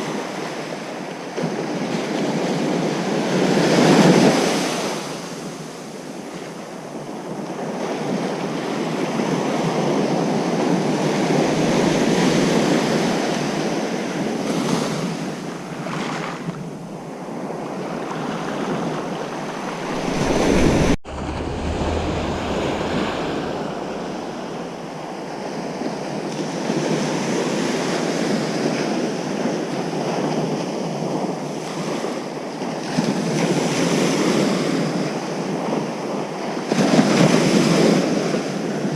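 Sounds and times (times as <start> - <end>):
ocean surf breaking on beach: 10.9 - 14.6, 19.0 - 25.9.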